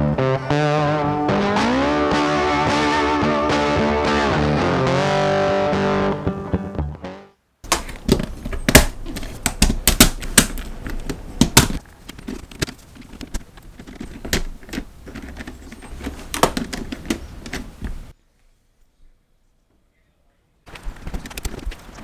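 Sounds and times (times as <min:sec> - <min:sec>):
plastic parts clicking and clacking: 0:07.7 - 0:18.1, 0:20.7 - 0:22.0.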